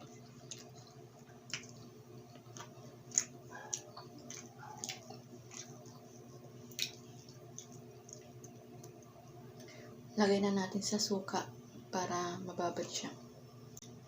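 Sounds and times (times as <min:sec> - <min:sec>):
person chewing food: 0:00.0 - 0:09.2
faint steady hum: 0:00.0 - 0:14.0
wet mouth smacks and clicks: 0:06.7 - 0:09.0.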